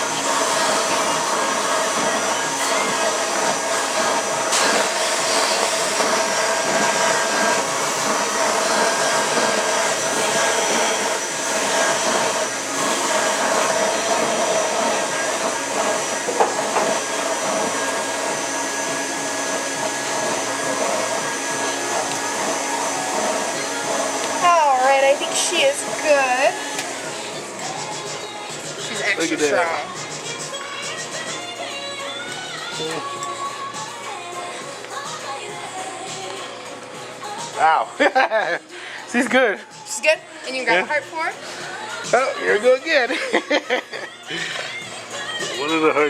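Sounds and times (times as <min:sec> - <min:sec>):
blower whooshing stuffing: 0:00.0 - 0:31.2
motor whine: 0:00.0 - 0:37.8.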